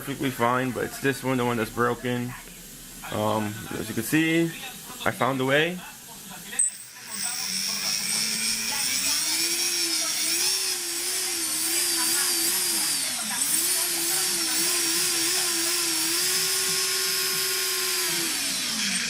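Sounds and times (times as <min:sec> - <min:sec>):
drone motors whining: 0:06.6 - 0:19.0.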